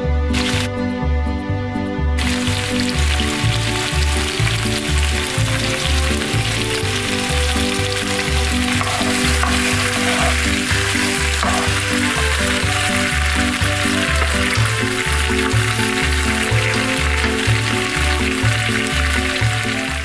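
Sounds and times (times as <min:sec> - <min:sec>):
background music with steady beat: 0:00.0 - 0:20.0
vegetables sizzling in oil: 0:00.4 - 0:00.7, 0:02.2 - 0:20.0
spatula stirring in pan: 0:08.7 - 0:13.3.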